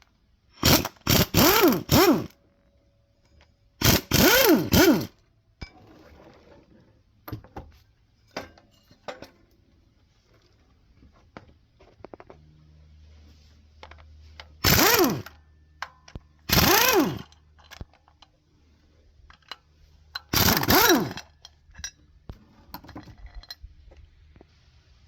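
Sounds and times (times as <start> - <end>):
power tool bursts: 0.6 - 2.3, 3.8 - 5.2, 14.6 - 15.4, 16.5 - 17.3, 20.3 - 21.3.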